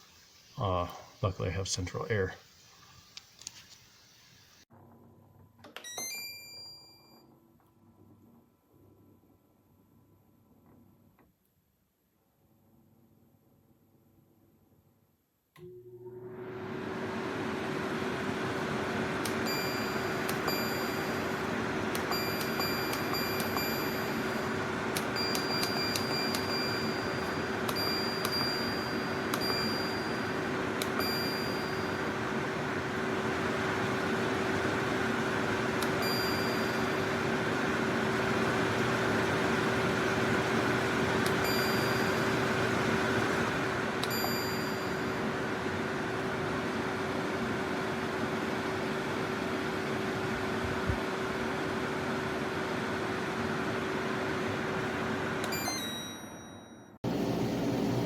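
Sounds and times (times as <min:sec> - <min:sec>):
air conditioner running: 0:16.1 - 0:56.4, 0:57.0 - 0:58.0
short high pings: 0:55.5 - 0:57.0.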